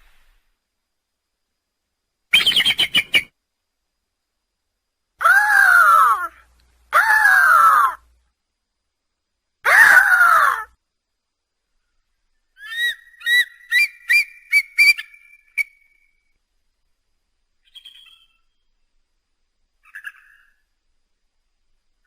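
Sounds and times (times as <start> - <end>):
eagle screaming: 5.2 - 8.0, 9.6 - 10.8.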